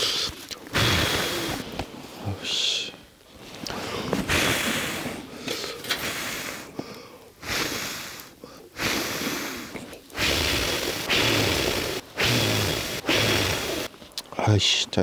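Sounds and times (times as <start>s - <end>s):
man huffing and exhaling: 0.0s - 1.7s, 3.7s - 13.9s.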